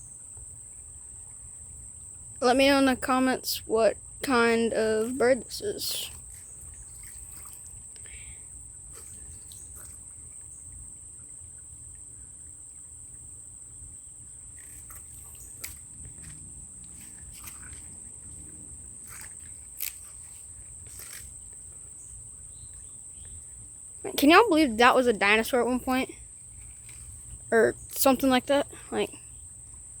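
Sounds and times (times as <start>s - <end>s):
high-pitched insect chorus: 0.0s - 30.0s.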